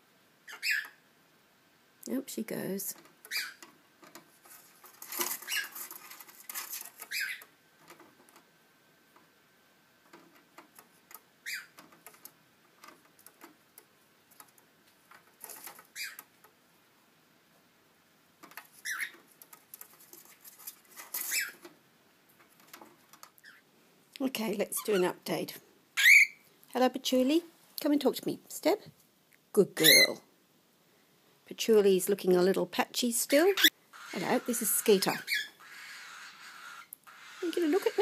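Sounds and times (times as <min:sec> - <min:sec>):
cockatiel chirping: 0:00.5 - 0:01.0, 0:03.3 - 0:03.6, 0:05.4 - 0:05.8, 0:07.0 - 0:07.5, 0:11.4 - 0:11.8, 0:15.9 - 0:16.2, 0:18.8 - 0:19.2, 0:21.2 - 0:21.6, 0:26.0 - 0:26.4, 0:29.8 - 0:30.2, 0:33.4 - 0:38.0
bird scratching on plastic: 0:02.9 - 0:08.5, 0:10.0 - 0:16.5, 0:18.4 - 0:21.8, 0:34.0 - 0:38.0.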